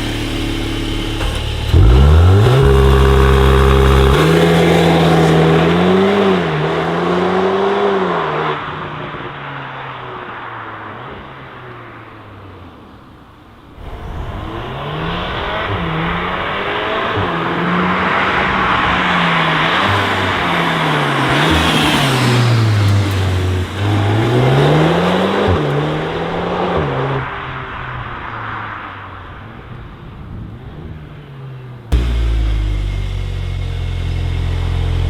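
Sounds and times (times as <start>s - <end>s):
car engine accelerating hard: 0.0s - 9.4s, 13.7s - 28.5s, 31.9s - 35.0s.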